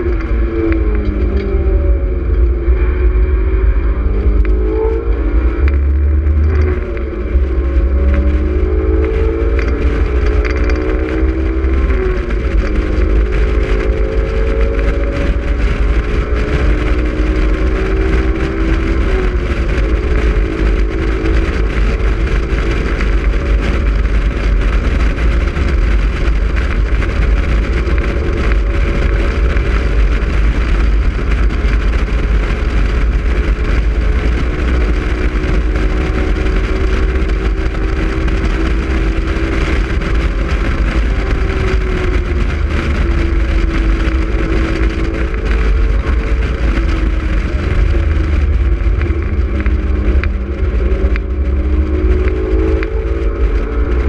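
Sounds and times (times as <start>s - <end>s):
car engine revving: 0.0s - 54.0s
wind rushing: 0.0s - 54.0s.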